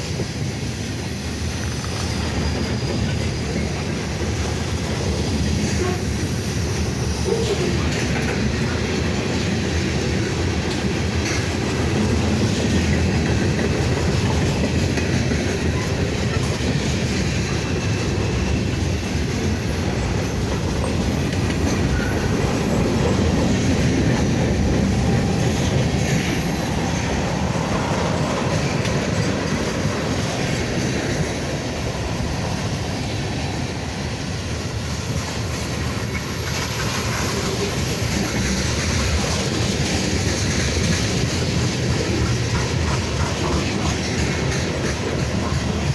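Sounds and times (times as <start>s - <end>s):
freight cars rolling past: 0.0s - 45.9s.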